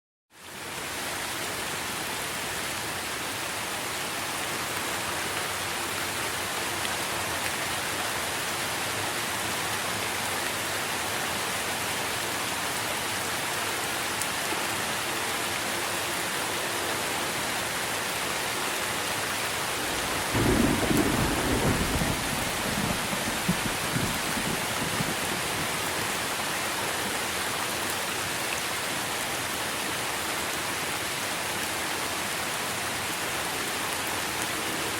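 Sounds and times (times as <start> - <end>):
heavy rain on trees: 0.3 - 34.9
thunder rumble: 19.8 - 25.6.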